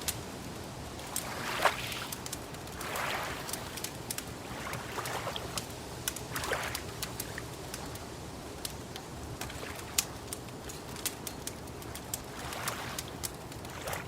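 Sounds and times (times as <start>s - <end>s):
wood fire crackling and popping: 0.0s - 14.0s
lapping water: 1.0s - 5.7s, 6.3s - 8.0s, 11.9s - 14.0s.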